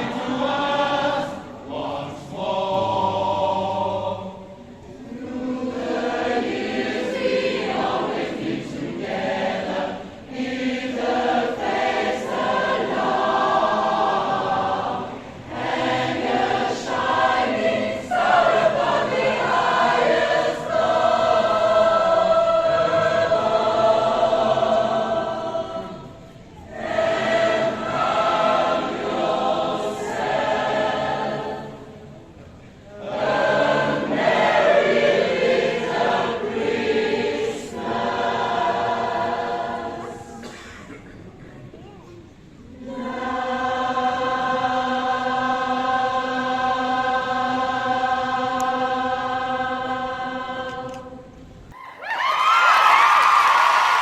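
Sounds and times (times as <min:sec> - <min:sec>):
choir singing: 0:00.0 - 0:40.7, 0:42.6 - 0:51.7.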